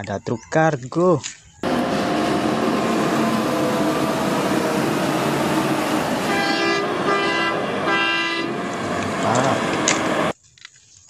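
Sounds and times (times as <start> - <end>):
horn tooting: 1.6 - 10.3
steady rushing noise: 1.6 - 10.3.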